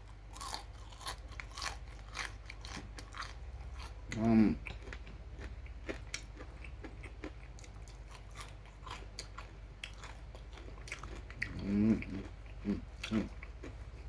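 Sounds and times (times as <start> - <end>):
crunchy chewing: 0.0 - 14.0
person humming: 11.5 - 13.3
short vocal sounds: 11.5 - 13.3.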